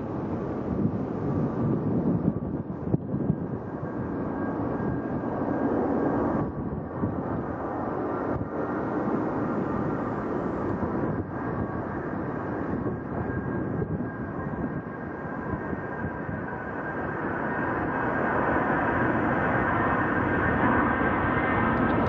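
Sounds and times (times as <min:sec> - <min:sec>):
jet engines running: 0:00.0 - 0:22.0.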